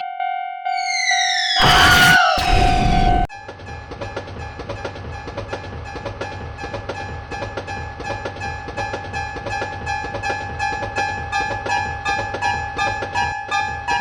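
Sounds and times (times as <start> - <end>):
wheels clacking on rails: 3.4 - 14.0.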